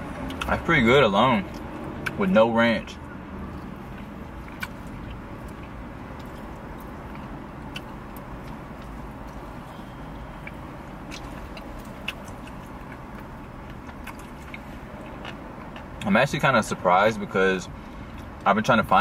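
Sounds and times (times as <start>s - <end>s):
low rumble inside car: 0.0s - 19.0s
people chewing and lip-smacking: 0.2s - 0.7s, 2.9s - 16.2s.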